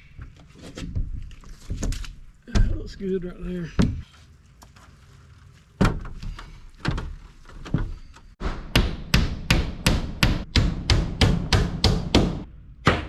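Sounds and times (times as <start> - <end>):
hammer striking siding: 8.4 - 13.0.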